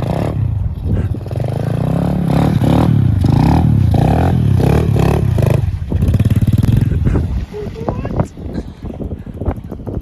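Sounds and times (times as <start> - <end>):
pit bike engine revving: 0.0 - 7.9.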